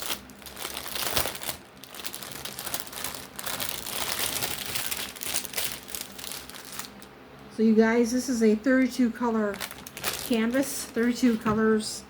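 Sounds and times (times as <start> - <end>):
plastic packaging crinkling: 0.0 - 7.1, 9.4 - 11.6.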